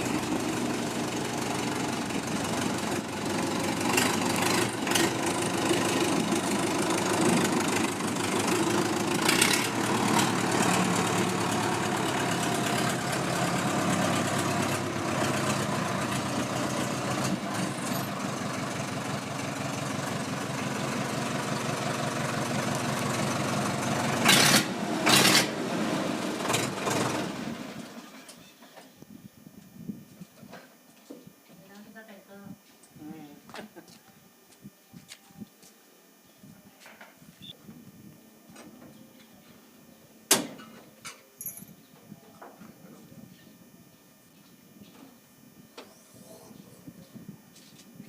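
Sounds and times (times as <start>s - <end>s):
tractor diesel engine idling: 0.0s - 28.2s.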